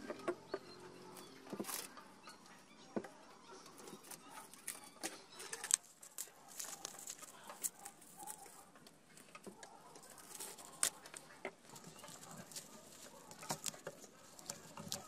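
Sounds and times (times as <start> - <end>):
plastic wrap crinkling: 3.8 - 15.0.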